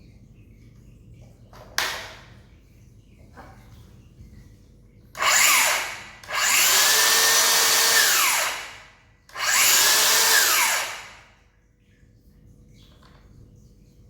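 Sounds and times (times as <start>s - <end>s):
circular saw motor whining: 5.2s - 11.2s.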